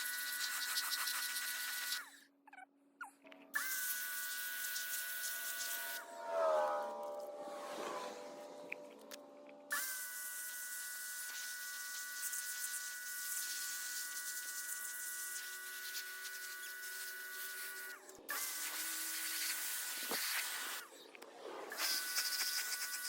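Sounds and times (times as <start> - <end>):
pressure washer spraying: 10.3 - 20.8.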